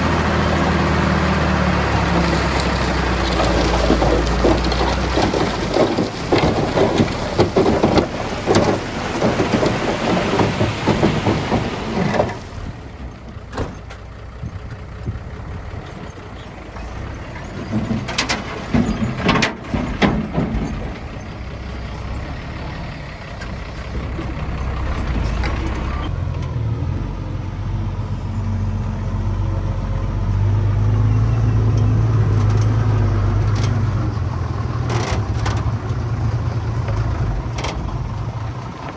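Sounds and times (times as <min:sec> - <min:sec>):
earthmoving machinery working rock: 0:00.0 - 0:13.9, 0:14.5 - 0:26.1
low engine note: 0:20.0 - 0:38.9.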